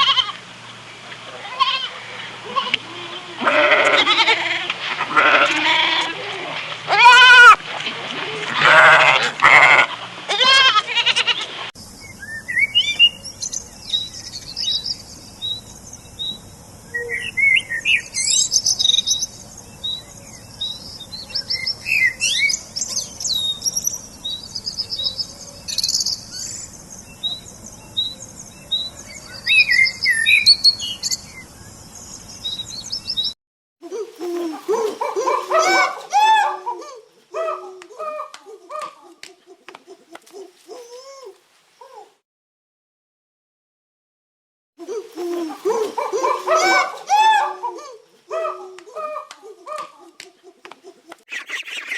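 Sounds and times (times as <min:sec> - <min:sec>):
goat or sheep bleating: 0:01.4 - 0:07.6, 0:08.4 - 0:11.5
small birds chirping: 0:11.8 - 0:36.6, 0:44.8 - 0:51.9.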